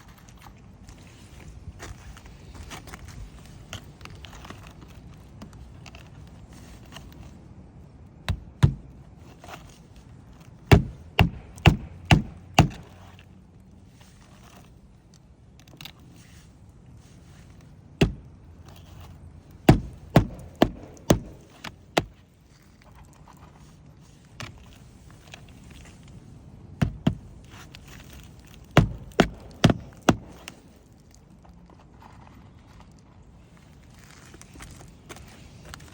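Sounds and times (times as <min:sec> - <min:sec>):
hammer knocking on shingle roof: 0:08.3 - 0:08.8, 0:10.7 - 0:12.9, 0:19.7 - 0:22.1, 0:28.8 - 0:30.4.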